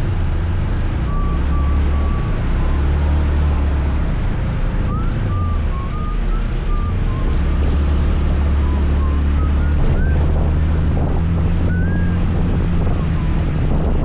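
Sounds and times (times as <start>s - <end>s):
wind noise on microphone: 0.0s - 14.0s
thin wavering whistle tone: 1.0s - 4.1s, 4.8s - 10.8s, 11.5s - 13.5s.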